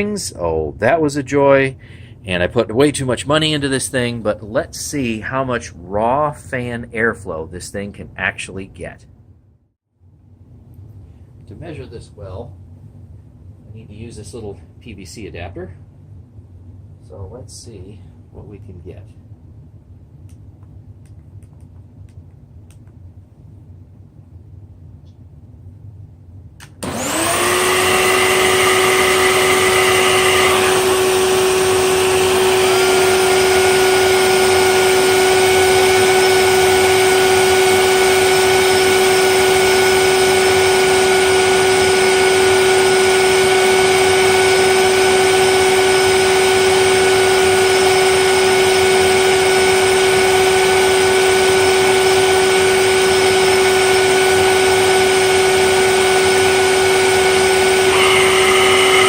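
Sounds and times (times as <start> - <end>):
vacuum cleaner motor whine: 26.8 - 59.0.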